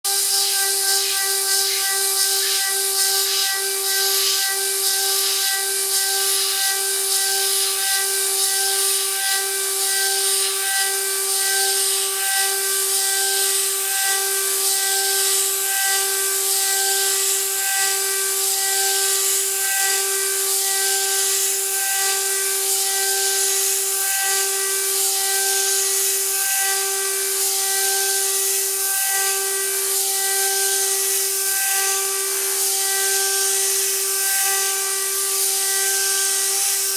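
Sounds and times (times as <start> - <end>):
cutter milling metal hiss: 0.1 - 36.9.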